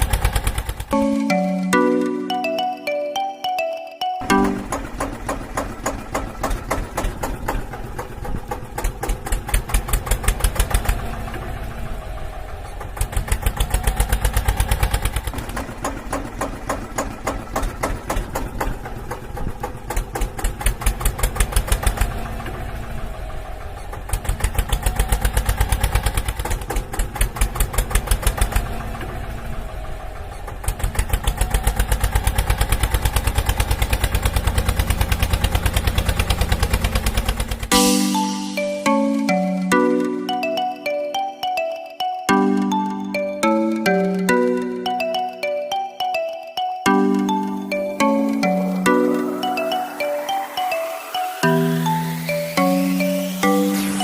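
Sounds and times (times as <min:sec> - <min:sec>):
tractor engine chugging: 0:00.0 - 0:01.0, 0:04.3 - 0:37.8.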